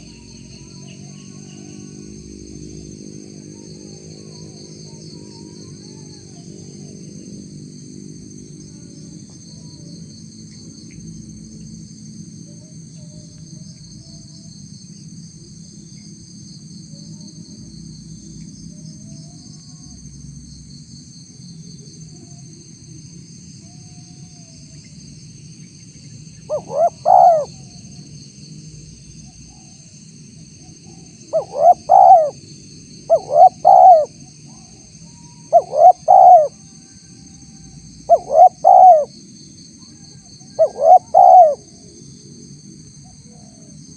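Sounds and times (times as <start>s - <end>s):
dove cooing: 26.5s - 27.8s, 30.9s - 32.4s, 33.1s - 34.2s, 35.4s - 36.6s, 38.0s - 39.1s, 40.5s - 41.9s.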